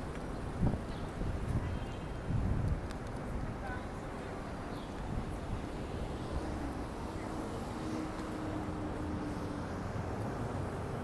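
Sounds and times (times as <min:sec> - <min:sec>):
low rumble of traffic: 0:00.0 - 0:11.0.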